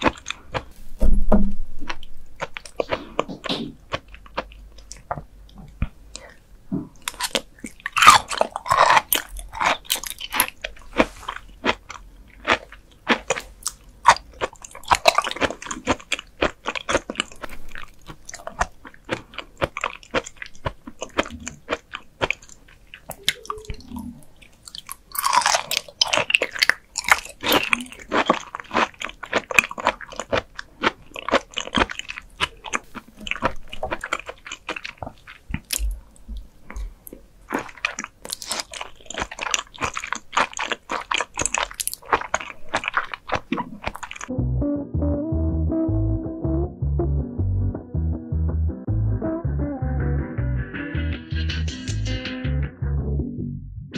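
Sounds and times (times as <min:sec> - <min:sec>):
biting and chewing: 0:00.0 - 0:00.7, 0:01.8 - 0:06.4, 0:07.0 - 0:44.3.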